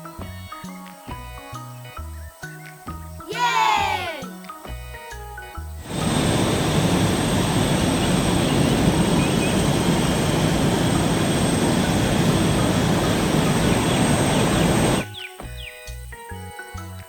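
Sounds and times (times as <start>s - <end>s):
heavy machine engine rumbling: 5.8s - 15.0s.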